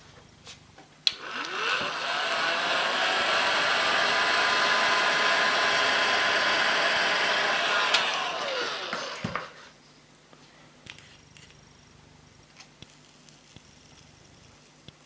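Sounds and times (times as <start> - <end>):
heat gun fan winding down: 1.0 - 9.7.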